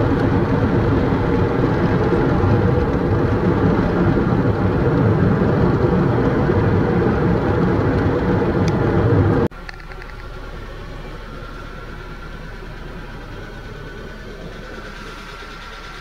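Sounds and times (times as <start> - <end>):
gale wind buffeting microphone: 0.0 - 9.5.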